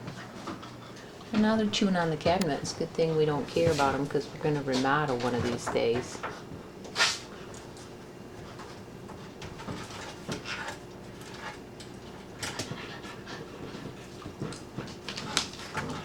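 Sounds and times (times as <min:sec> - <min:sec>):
puppies panting: 0:12.3 - 0:16.0.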